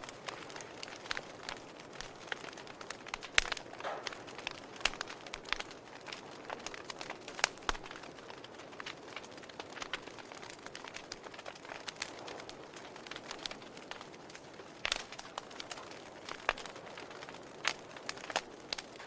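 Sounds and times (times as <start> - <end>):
fire pops and snaps: 0.0 - 19.0
wood fire crackling: 0.0 - 19.0.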